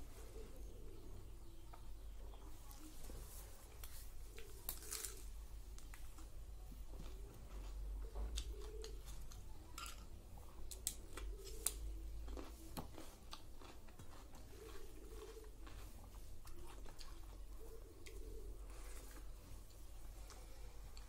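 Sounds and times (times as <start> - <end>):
crunching raw cucumber: 3.8 - 6.0, 10.7 - 17.4.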